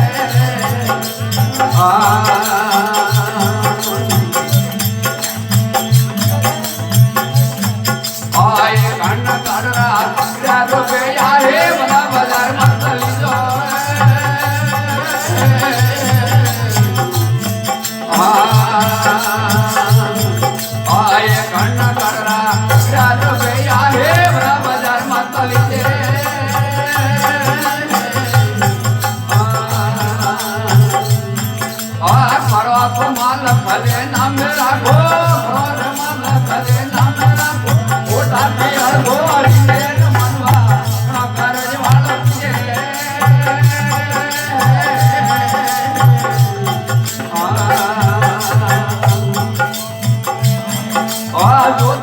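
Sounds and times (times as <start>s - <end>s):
devotional folk melody: 0.0s - 52.0s
hand percussion: 0.0s - 52.0s.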